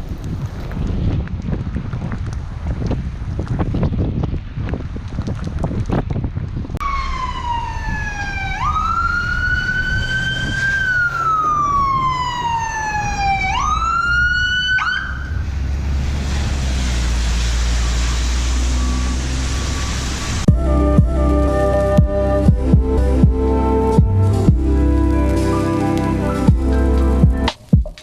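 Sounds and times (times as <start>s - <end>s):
emergency vehicle siren wailing: 6.8s - 27.5s.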